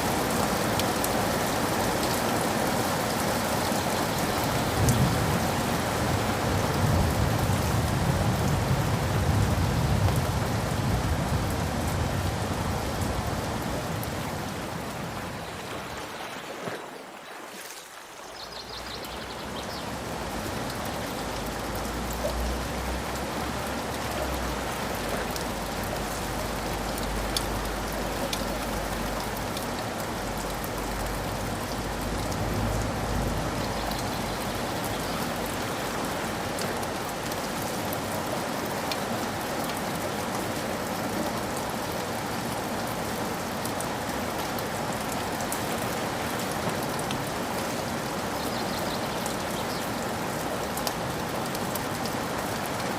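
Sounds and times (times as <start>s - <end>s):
rain pattering: 0.0s - 52.9s.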